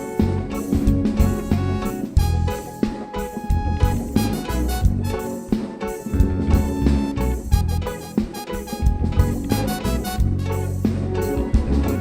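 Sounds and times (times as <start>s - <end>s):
guitar: 0.0s - 12.0s
live band playing: 0.0s - 12.0s
steady drum beat: 0.0s - 12.0s.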